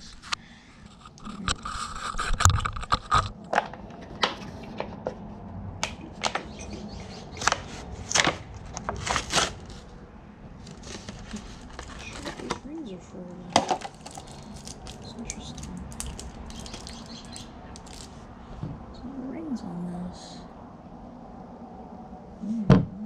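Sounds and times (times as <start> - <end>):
packaging scraping and crackling: 0.0 - 4.8, 5.8 - 10.0, 10.6 - 12.7, 13.6 - 18.2.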